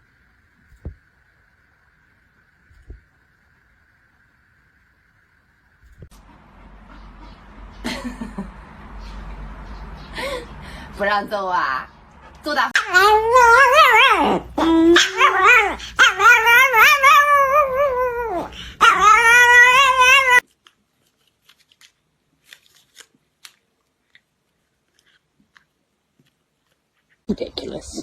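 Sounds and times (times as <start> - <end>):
dog howling: 12.8 - 20.4.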